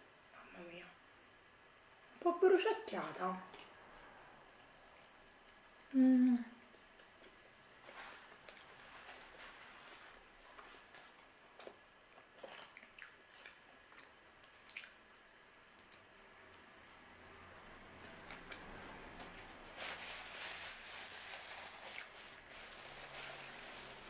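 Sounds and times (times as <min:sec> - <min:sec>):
faint chewing and mouth clicks: 0:03.4 - 0:19.4
paper napkin rustling: 0:19.4 - 0:24.0.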